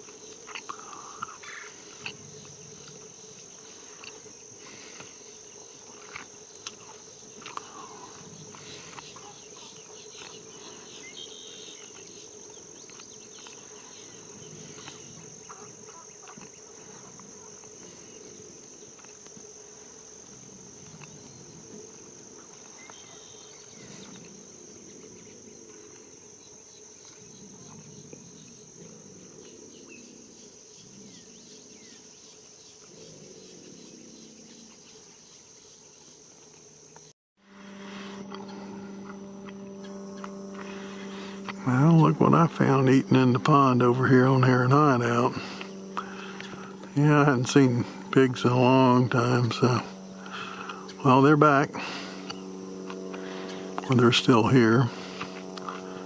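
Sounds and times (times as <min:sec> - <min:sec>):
insects droning: 0:00.0 - 0:56.0
low steady hum: 0:37.4 - 0:56.0.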